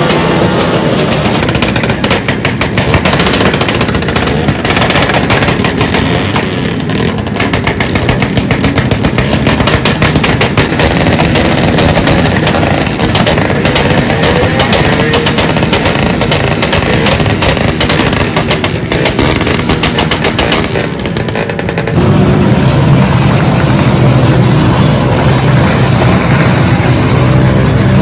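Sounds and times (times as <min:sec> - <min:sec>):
exhaust pops crackling: 0:00.0 - 0:27.2
motorcycle engines revving: 0:00.0 - 0:28.0.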